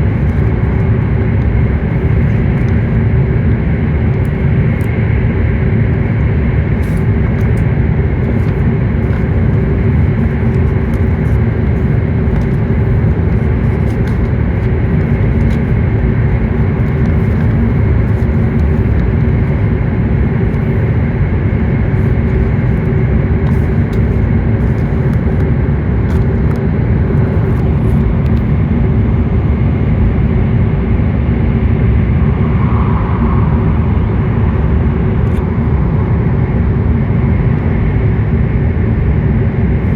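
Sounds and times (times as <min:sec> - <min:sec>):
train cabin rumble: 0:00.0 - 0:28.5
faint hum: 0:00.0 - 0:39.9.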